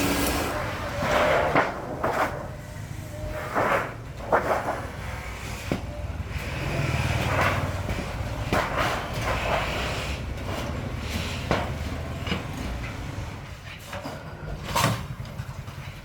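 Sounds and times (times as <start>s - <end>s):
machinery humming: 0.0s - 1.1s.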